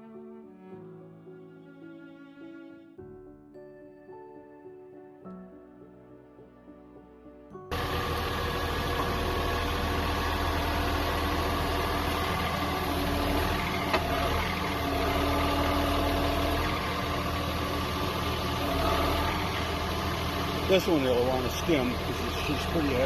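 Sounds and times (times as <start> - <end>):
tractor diesel engine running: 7.7 - 23.0.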